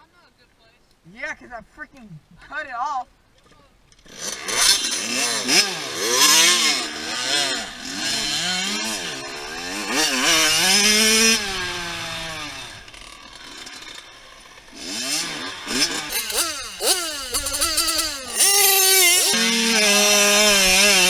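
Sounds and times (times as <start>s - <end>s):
dirt bike engine revving: 16.1s - 19.4s.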